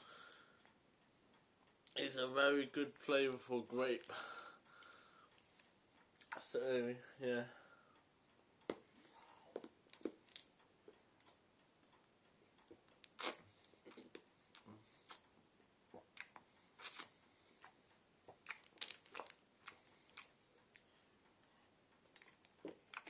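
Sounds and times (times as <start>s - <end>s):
rustling of small objects: 3.0s - 4.6s, 5.3s - 6.4s, 9.6s - 10.5s, 18.4s - 20.9s
small objects clicking: 3.3s - 4.6s.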